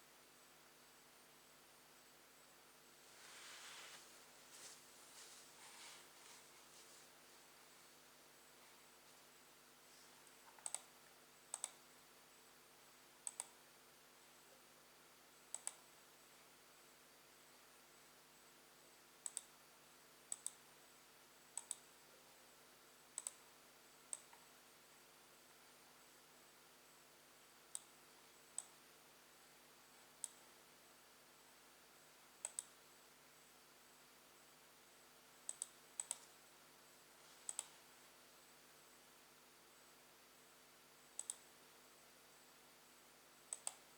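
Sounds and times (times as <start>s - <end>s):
computer mouse clicks: 10.2s - 11.8s, 13.2s - 13.6s, 15.5s - 15.9s, 19.2s - 19.6s, 20.3s - 20.6s, 21.6s - 21.9s, 23.2s - 23.5s, 24.1s - 24.5s, 27.7s - 28.8s, 30.2s - 30.5s, 32.4s - 32.8s, 35.4s - 36.4s, 37.4s - 37.8s, 41.1s - 41.5s, 43.5s - 43.9s.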